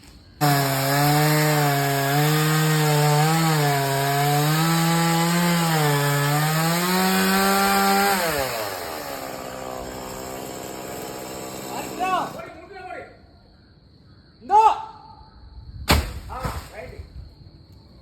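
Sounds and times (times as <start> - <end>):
chainsaw cutting wood: 0.4 - 12.4.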